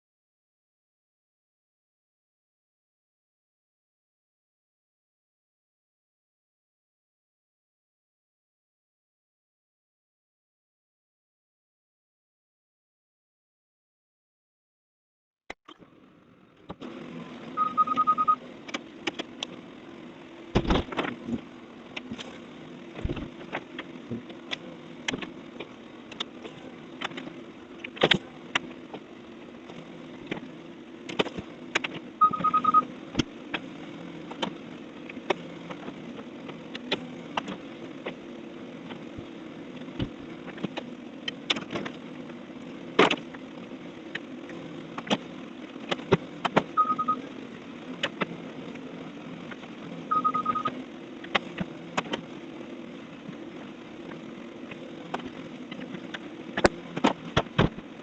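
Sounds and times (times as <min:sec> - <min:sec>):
rapid beeps: 0:17.6 - 0:18.4, 0:32.2 - 0:32.9, 0:46.8 - 0:47.2, 0:50.1 - 0:50.7.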